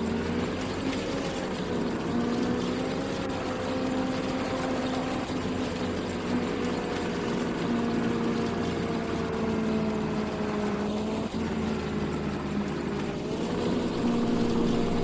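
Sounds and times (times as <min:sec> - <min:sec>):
combine harvester engine drone: 0:00.0 - 0:15.0.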